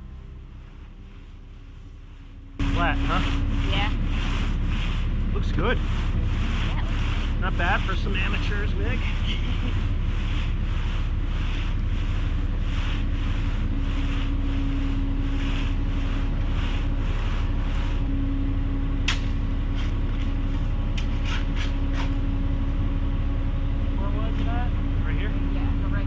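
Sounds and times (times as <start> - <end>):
rhythmic swishing: 0.0 - 18.1
engine rumbling: 0.0 - 26.0.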